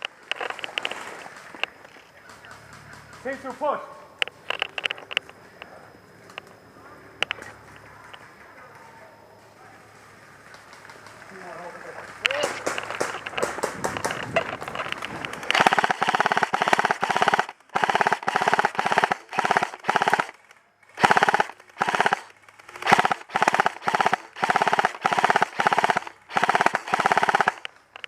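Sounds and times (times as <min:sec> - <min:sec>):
airsoft gun firing bursts: 0:10.7 - 0:28.0.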